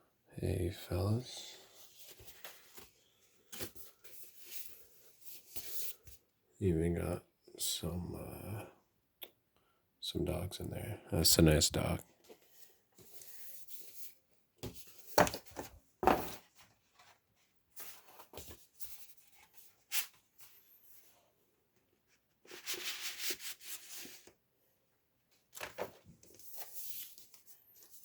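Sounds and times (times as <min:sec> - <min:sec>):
paper sleeve rubbing and sliding: 0:22.4 - 0:24.3.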